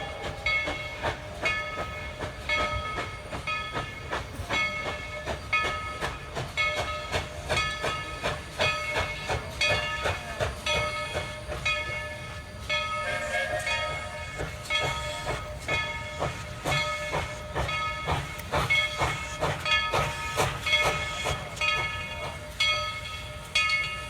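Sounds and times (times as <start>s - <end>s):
hissing steam: 0.0s - 24.0s
steam locomotive exhaust chuffs: 0.0s - 24.0s.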